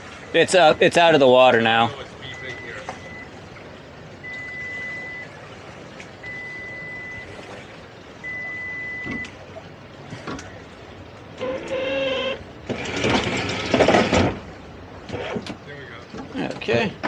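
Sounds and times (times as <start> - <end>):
engine running: 0.0 - 16.6
water noise: 0.0 - 17.0
electronic alarm beeping: 2.3 - 3.3, 4.2 - 5.3, 6.2 - 7.3, 8.2 - 9.3.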